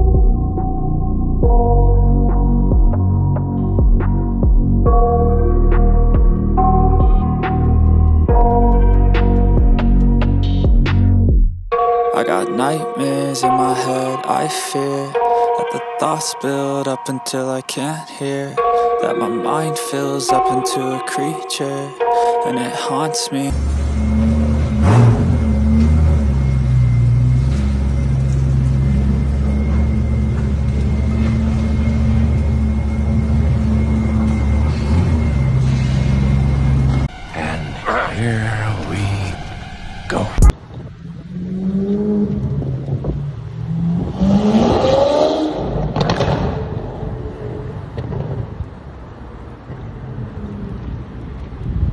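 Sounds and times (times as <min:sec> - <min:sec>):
rushing noise: 0:12.4 - 0:41.5
car engine revving and accelerating: 0:23.5 - 0:40.3, 0:41.0 - 0:47.0.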